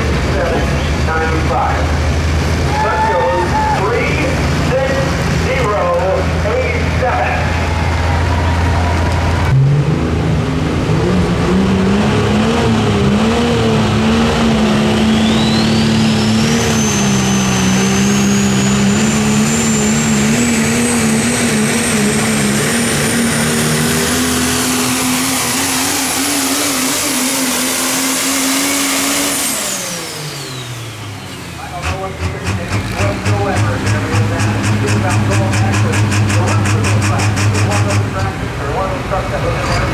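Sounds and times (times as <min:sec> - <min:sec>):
diesel truck engine under load: 0:00.0 - 0:39.9
turbocharger whistle: 0:02.6 - 0:04.3, 0:12.2 - 0:38.2.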